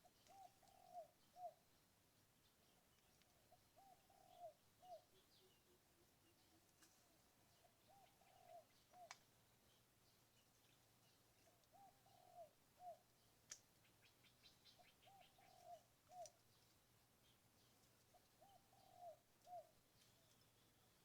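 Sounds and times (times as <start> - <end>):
dove cooing: 0.0 - 1.6, 3.4 - 6.7, 7.4 - 9.2, 11.5 - 13.0, 14.0 - 16.4, 18.1 - 19.8
small birds chirping: 0.0 - 21.0.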